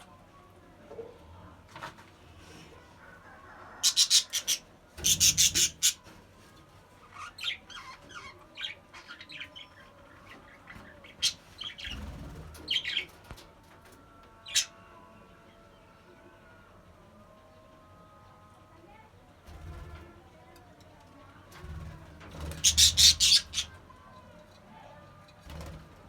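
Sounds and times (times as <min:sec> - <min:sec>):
budgerigars chirping and squawking: 0:03.8 - 0:06.0, 0:07.1 - 0:13.1, 0:14.5 - 0:14.7, 0:22.4 - 0:23.8.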